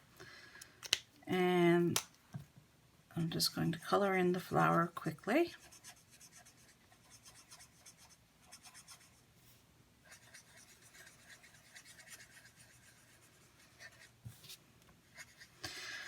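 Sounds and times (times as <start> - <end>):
marker scratching on cardstock: 5.6 - 9.2, 10.1 - 14.1.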